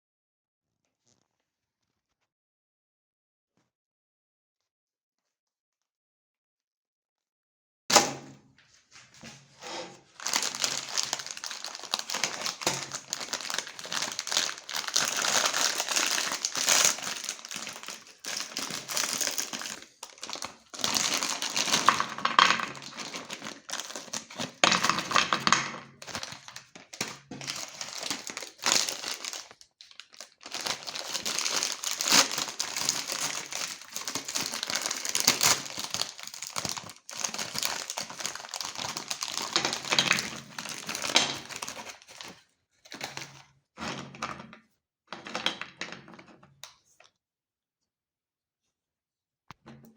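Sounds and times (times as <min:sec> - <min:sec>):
cookies crunching in meat grinder: 0:10.1 - 0:43.4.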